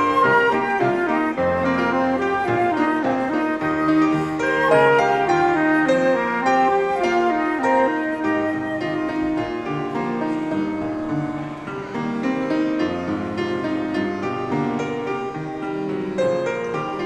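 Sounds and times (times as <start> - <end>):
piano: 0.0 - 17.0
woodwind notes: 0.0 - 17.0.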